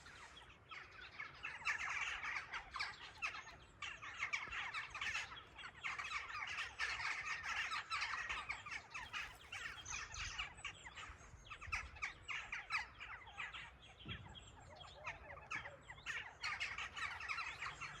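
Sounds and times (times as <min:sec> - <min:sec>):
small birds chirping chorus: 0:00.0 - 0:18.0.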